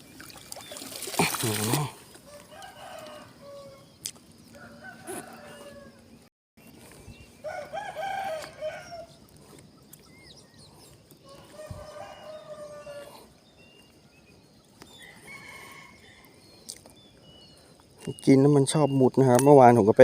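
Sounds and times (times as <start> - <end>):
roosters crowing: 2.2 - 6.1, 7.4 - 9.2, 11.2 - 13.4, 14.9 - 16.4.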